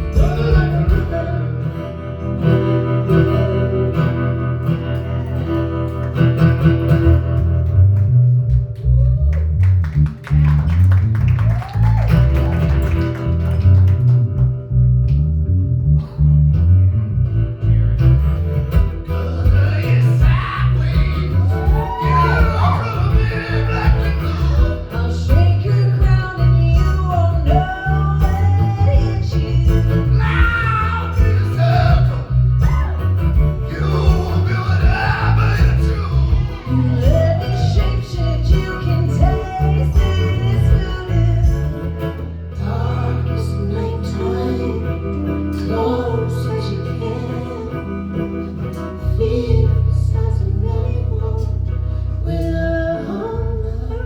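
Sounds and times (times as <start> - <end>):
person singing: 0.0 - 5.6, 18.9 - 54.0
bass line: 0.0 - 54.0
guitar: 0.0 - 54.0.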